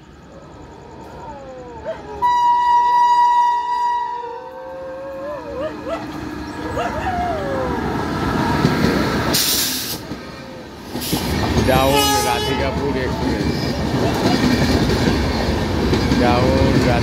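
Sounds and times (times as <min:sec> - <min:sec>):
train rumbling past: 0:00.0 - 0:17.0
locomotive horn blast: 0:02.2 - 0:04.5, 0:11.8 - 0:12.8.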